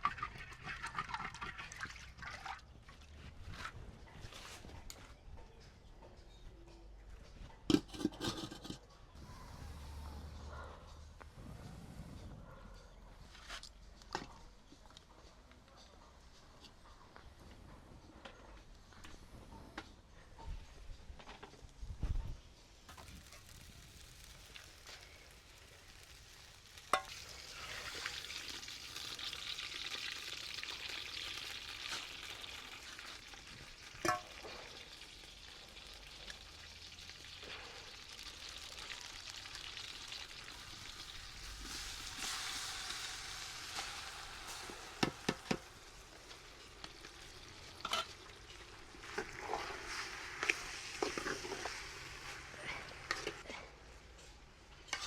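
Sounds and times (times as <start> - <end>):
food sizzling in a pot: 22.9 - 53.4.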